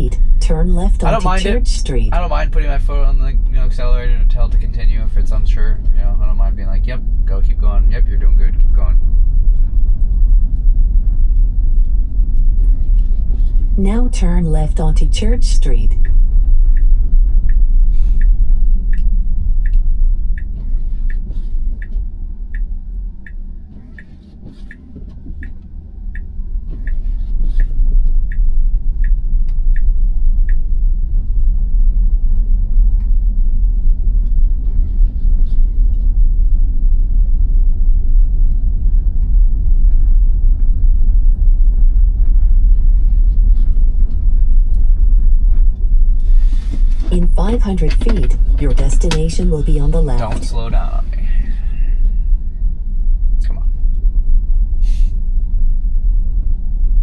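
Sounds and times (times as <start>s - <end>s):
turn signal ticking: 6.6s - 31.3s
tyre and road noise rumble: 16.0s - 54.4s.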